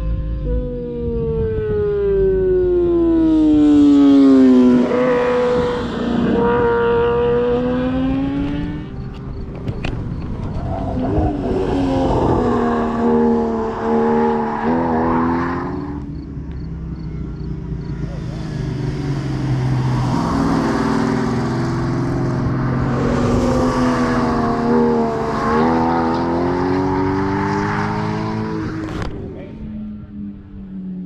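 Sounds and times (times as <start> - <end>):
wind rushing: 9.4 - 15.9, 18.4 - 29.0.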